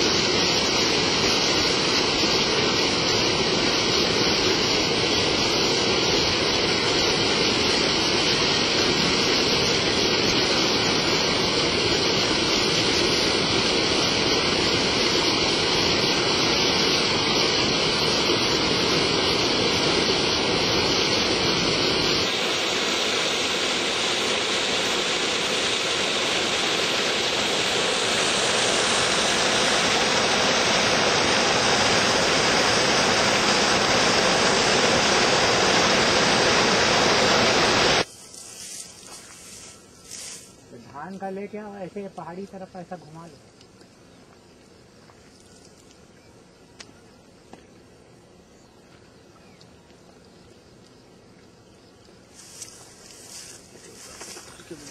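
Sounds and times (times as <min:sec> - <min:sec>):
water rushing over small fall: 0:00.0 - 0:38.1.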